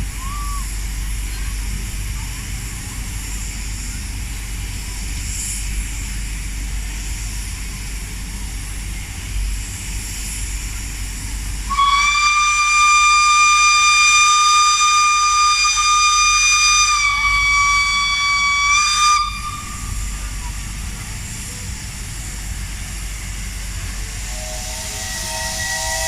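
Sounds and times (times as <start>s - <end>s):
steady rumbling hiss: 0.0s - 26.0s
steam locomotive whistle: 11.7s - 20.5s, 24.0s - 26.0s.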